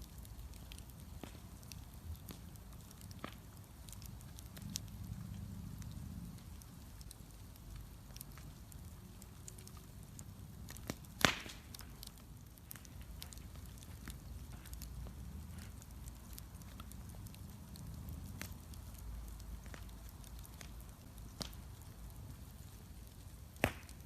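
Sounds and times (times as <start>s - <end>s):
bonfire crackling: 0.0s - 24.0s
loud pop from fire: 10.7s - 11.9s, 23.5s - 24.0s.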